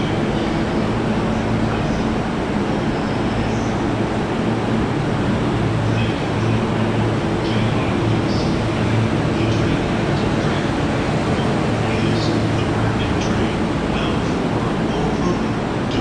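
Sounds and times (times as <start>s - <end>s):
low steady hum: 0.0s - 16.0s
train rumbling: 0.0s - 16.0s.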